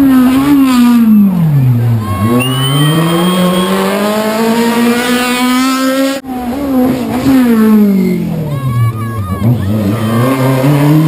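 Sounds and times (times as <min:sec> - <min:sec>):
car engine revving: 0:02.0 - 0:08.0.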